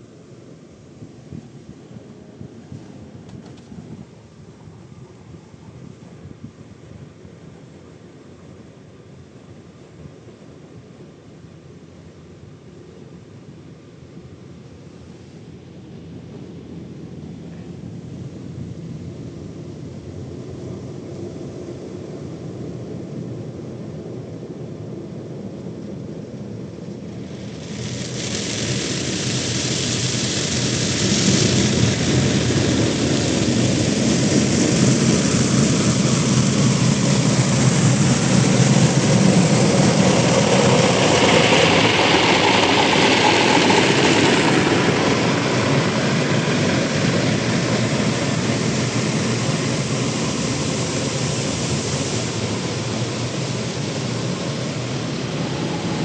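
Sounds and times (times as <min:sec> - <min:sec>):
car wash machinery rushing: 0:26.8 - 0:56.0.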